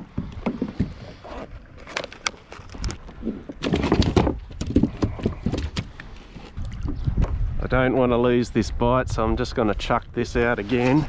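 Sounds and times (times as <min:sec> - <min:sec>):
knocks and thumps on a kayak: 0:00.0 - 0:01.2, 0:03.2 - 0:07.4.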